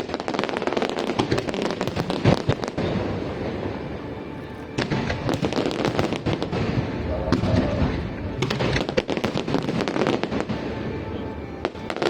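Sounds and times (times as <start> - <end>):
fireworks crackling and popping: 0.0 - 12.0
loud firework bang: 4.9 - 10.2.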